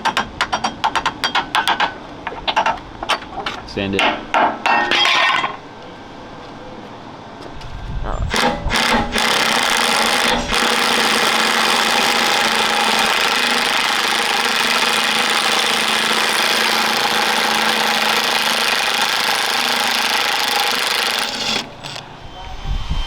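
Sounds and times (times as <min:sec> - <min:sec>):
impact wrench hammering: 0:08.3 - 0:22.0.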